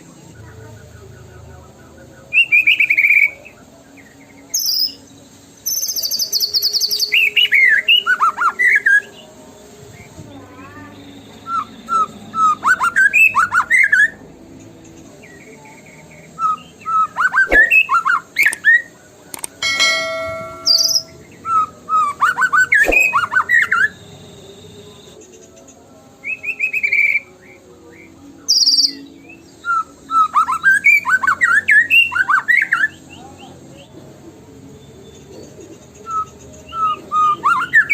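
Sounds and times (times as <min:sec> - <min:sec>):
songbird whistling and chattering: 0:16.4 - 0:18.9.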